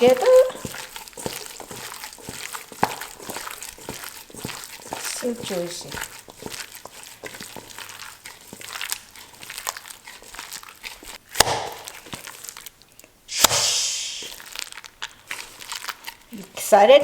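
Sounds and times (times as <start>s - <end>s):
paste squishing in a bowl: 0.0s - 17.0s
brief rushing noise: 13.3s - 14.3s
sharp knock: 13.4s - 13.8s.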